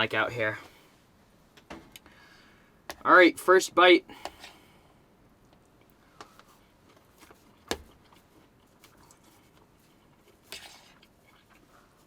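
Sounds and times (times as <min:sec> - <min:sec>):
person chewing food: 0:05.5 - 0:12.0.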